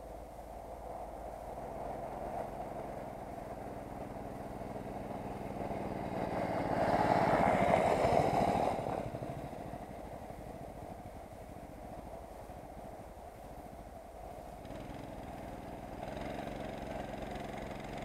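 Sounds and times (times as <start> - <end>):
motorcycle engine running: 1.6 - 13.1, 14.6 - 18.0.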